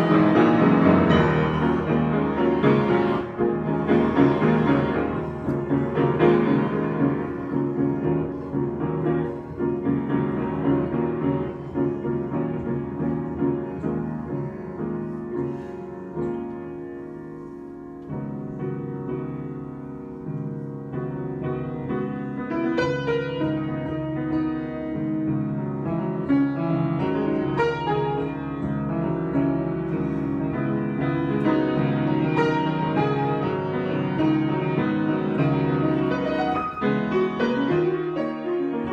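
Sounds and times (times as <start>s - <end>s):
solo piano improvisation: 0.0s - 38.9s.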